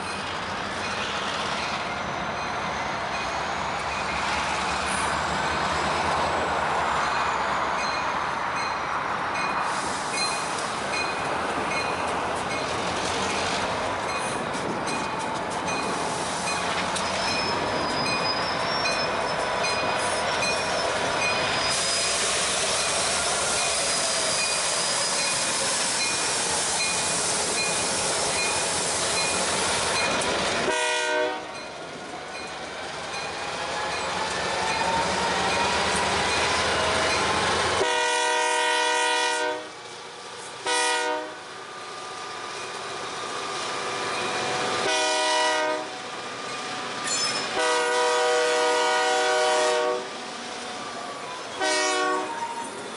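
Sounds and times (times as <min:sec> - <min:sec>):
diesel locomotives rumbling past: 0:00.0 - 0:52.9
locomotive air horn: 0:30.6 - 0:31.6, 0:37.8 - 0:39.8, 0:40.6 - 0:41.5, 0:44.7 - 0:46.0, 0:47.5 - 0:50.2, 0:51.6 - 0:52.6.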